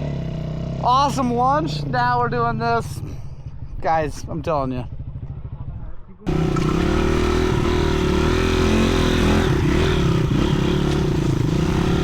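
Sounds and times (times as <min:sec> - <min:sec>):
dirt bike engine running: 0:04.6 - 0:12.0.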